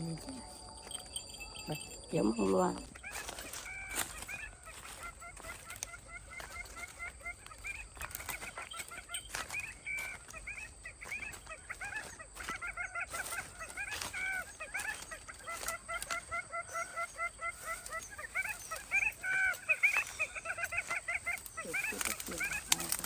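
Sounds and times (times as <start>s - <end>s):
fowl calling: 0.0s - 23.0s.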